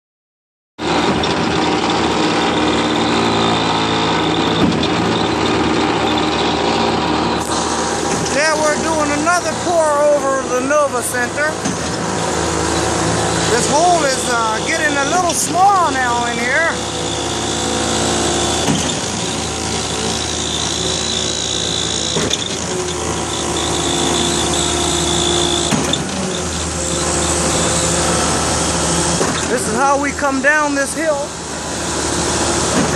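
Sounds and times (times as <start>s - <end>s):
construction machinery engine: 0.8s - 32.9s.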